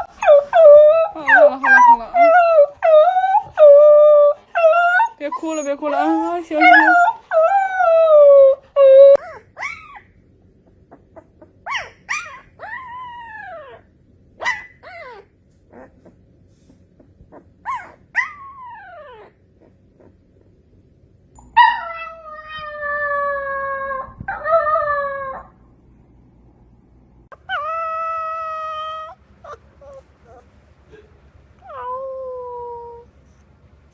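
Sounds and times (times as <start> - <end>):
puppies howling: 0.0 - 10.1, 27.4 - 30.5.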